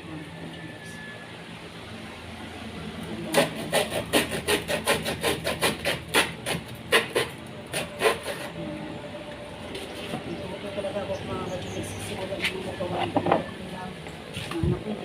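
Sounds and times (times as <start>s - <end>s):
handsaw cutting wood: 3.2s - 8.6s.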